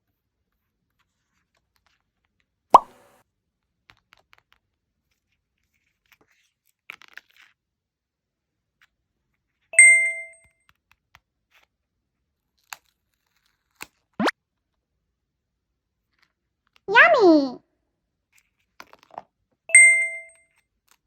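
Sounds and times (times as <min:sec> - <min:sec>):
bright ding: 0:09.8 - 0:10.4, 0:19.7 - 0:20.3.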